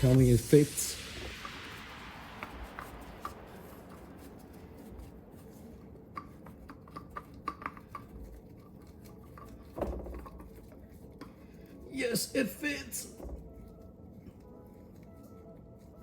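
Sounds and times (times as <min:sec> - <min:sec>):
oil filter clicking on threads: 0:06.1 - 0:10.4.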